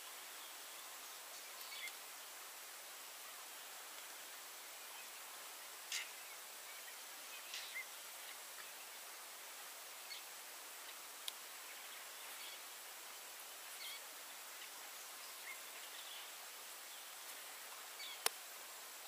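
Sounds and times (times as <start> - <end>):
faint bird chirps: 0.0 - 2.4, 4.6 - 9.1, 10.0 - 18.3
steady outdoor hiss: 0.0 - 19.0.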